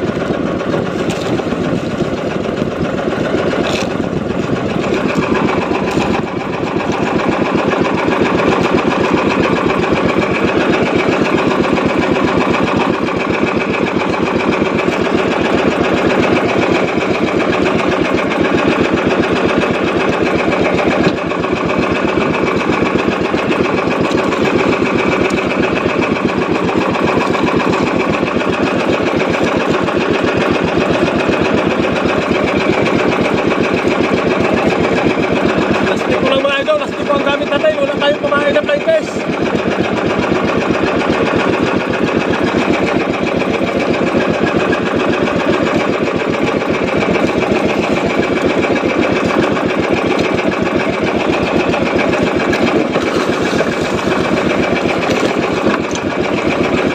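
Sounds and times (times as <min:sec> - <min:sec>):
boat engine chugging: 0:00.0 - 0:56.9.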